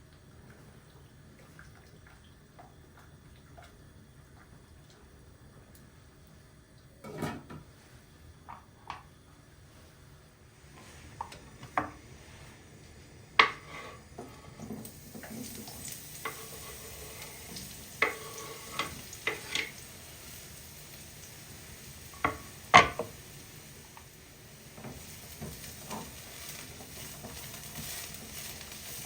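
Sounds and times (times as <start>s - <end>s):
frying sizzle: 0.0s - 29.0s
utensils clinking against pots: 7.0s - 7.6s, 18.0s - 19.8s.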